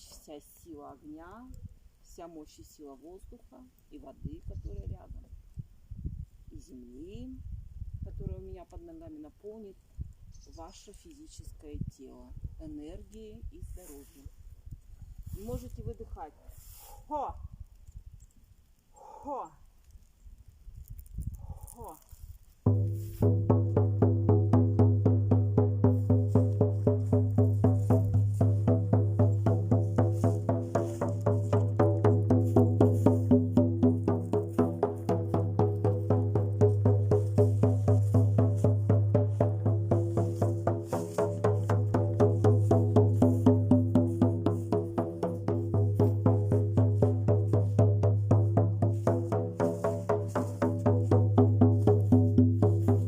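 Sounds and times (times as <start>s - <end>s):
frame drum beaten steadily: 22.7s - 53.0s.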